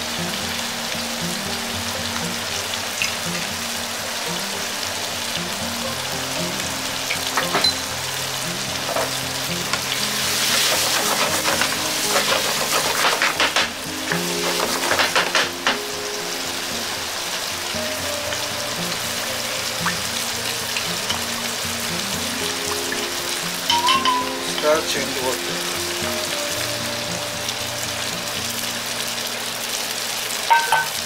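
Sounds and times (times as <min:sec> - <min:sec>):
food sizzling in a frying pan: 0:00.0 - 0:31.0
wooden spatula scraping a pan: 0:08.8 - 0:15.8.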